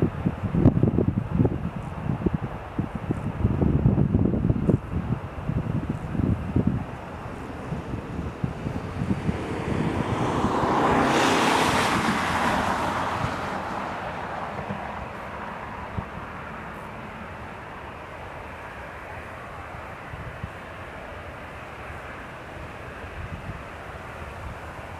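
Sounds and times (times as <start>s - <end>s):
wind rumbling on microphone: 0.0s - 24.9s
jet airliner taking off: 4.9s - 22.0s.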